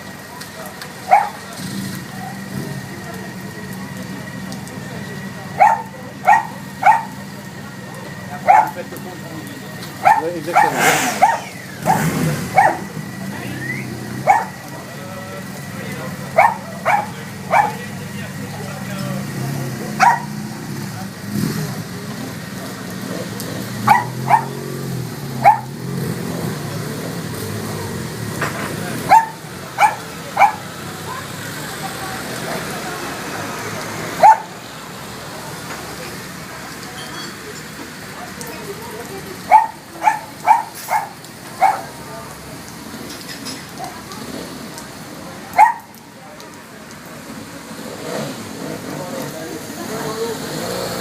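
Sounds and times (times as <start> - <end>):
low engine hum: 0.0 - 36.8
rain pattering: 0.0 - 51.0
dog barking: 1.0 - 1.4, 5.6 - 7.2, 8.4 - 8.8, 10.0 - 12.9, 14.2 - 14.7, 16.4 - 17.8, 20.0 - 20.4, 23.8 - 24.7, 25.4 - 25.8, 29.1 - 30.7, 34.2 - 34.6, 39.5 - 42.0, 45.5 - 46.0.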